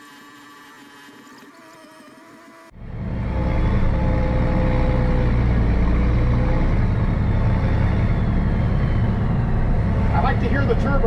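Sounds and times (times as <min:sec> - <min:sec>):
faint turbo whine: 0:02.7 - 0:11.0
tractor diesel engine under load: 0:02.8 - 0:11.0.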